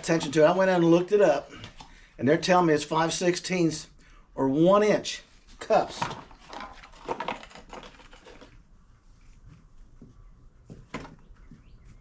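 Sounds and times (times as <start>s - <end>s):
packaging rustling: 5.8s - 8.6s.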